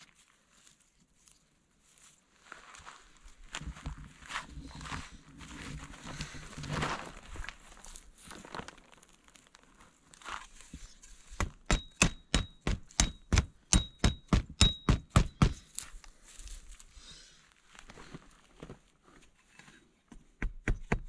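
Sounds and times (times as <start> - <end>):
hammer driving metal stakes: 11.3 - 15.7.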